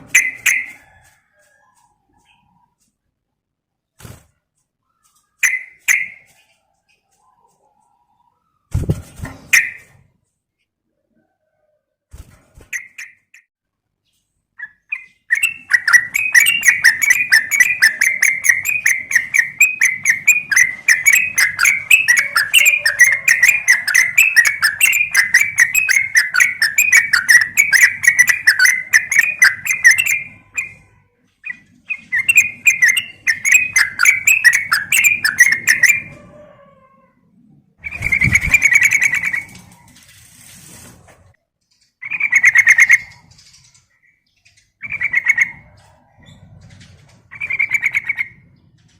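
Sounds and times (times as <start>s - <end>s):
bird chirping rapidly: 0.0s - 0.8s, 5.0s - 6.4s, 8.6s - 10.0s, 12.7s - 36.2s, 37.8s - 39.8s, 41.9s - 45.8s, 47.3s - 48.8s.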